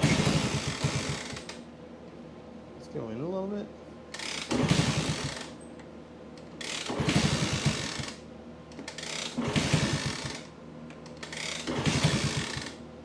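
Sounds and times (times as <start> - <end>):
motorcycle engine kick-started: 4.4 - 5.4, 6.9 - 8.1, 8.9 - 10.4, 11.2 - 12.7.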